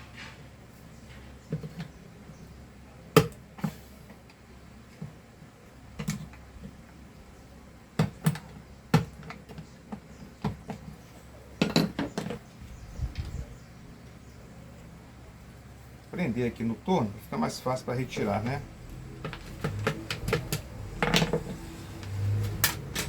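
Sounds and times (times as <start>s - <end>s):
metal tools clicking and clanking: 18.1s - 23.0s.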